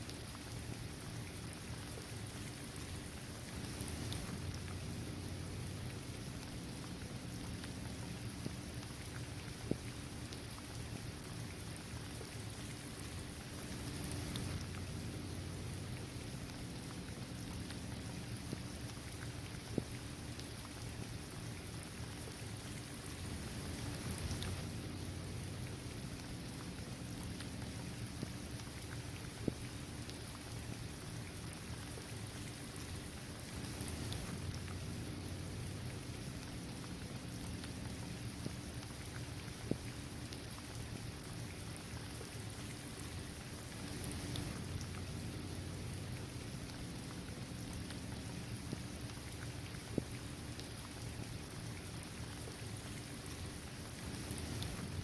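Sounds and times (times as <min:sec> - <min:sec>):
steady rain hiss: 0:00.0 - 0:55.0
single raindrops ticking: 0:23.4 - 0:28.7, 0:43.7 - 0:46.8.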